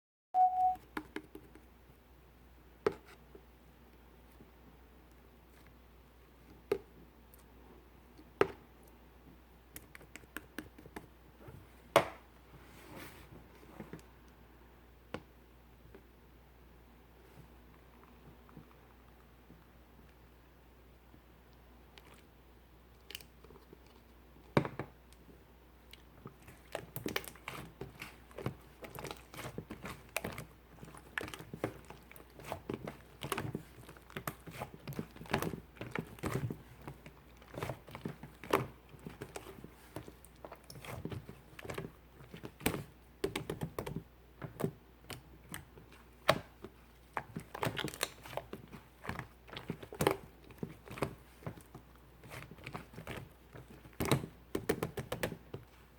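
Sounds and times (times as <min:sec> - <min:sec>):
slime squelching by hand: 0:21.5 - 0:24.5, 0:25.8 - 0:55.9.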